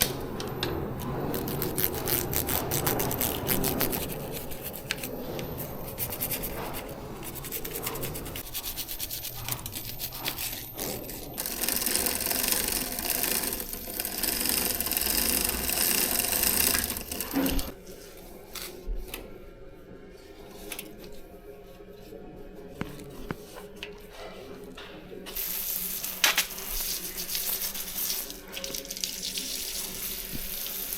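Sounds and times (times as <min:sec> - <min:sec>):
bicycle chain clicking: 0:01.0 - 0:05.0, 0:09.1 - 0:17.8.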